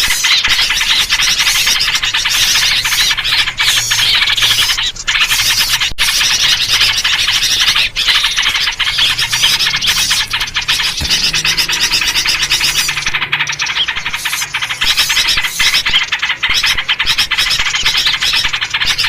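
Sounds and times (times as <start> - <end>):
songbirds chattering rapidly: 0.0 - 19.0.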